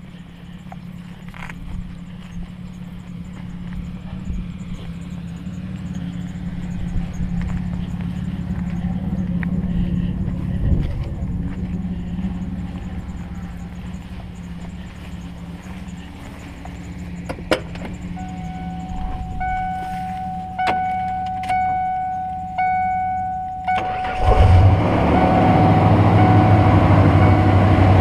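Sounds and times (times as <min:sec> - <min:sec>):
car engine starting and running: 0:00.0 - 0:28.0
dashboard warning chime: 0:12.2 - 0:28.0.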